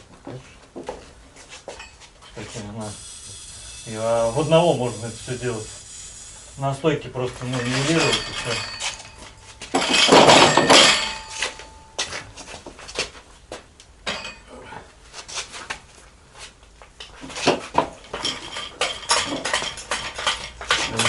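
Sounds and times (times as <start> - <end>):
metal tools clanking: 7.3 - 11.9, 14.1 - 14.5, 18.1 - 21.0
loud metal clatter: 7.4 - 11.3.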